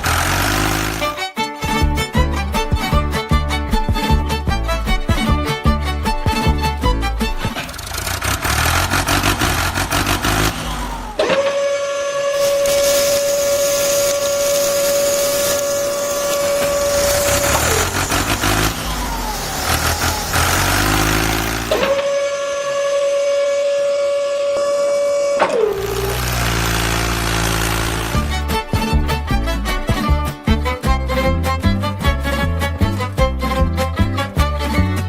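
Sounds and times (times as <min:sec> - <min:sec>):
engine running and revving: 0:00.0 - 0:01.2, 0:06.4 - 0:11.6, 0:12.3 - 0:22.2, 0:25.4 - 0:29.4
loud steady tone: 0:11.0 - 0:19.3, 0:20.4 - 0:28.1.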